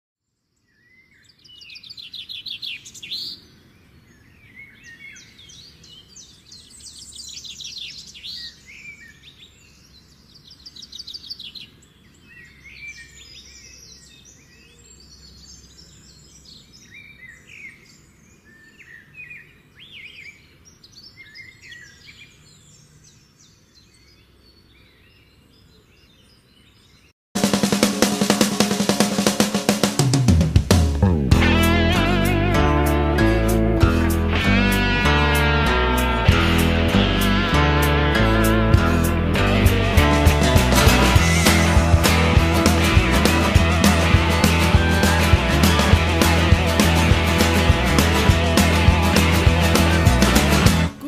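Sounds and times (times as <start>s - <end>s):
birds singing and chirping: 0.6s - 27.1s.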